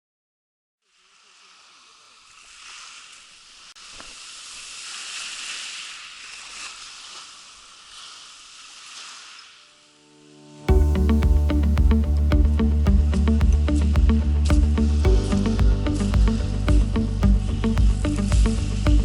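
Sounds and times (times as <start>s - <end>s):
sea water sloshing around kayak: 1.1s - 9.7s.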